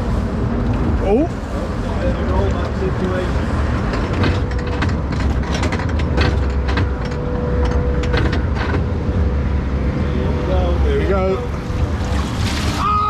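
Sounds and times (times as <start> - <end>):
lift clattering and knocking: 2.4 - 9.1.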